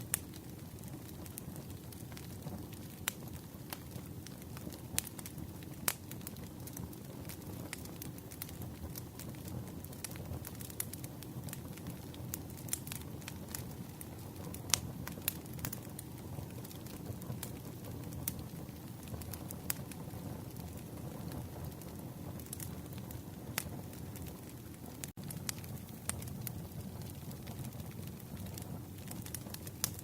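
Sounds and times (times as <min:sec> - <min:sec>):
campfire flames rumbling: 0:00.0 - 0:30.0
fire crackling and popping: 0:00.0 - 0:30.0.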